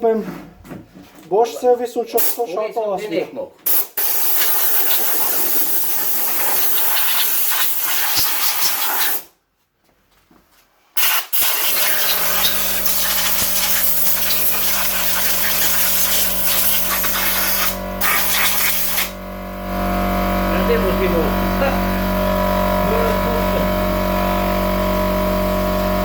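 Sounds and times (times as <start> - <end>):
air blow gun hissing: 3.7 - 9.3, 11.0 - 19.2
low machine hum: 12.0 - 26.0.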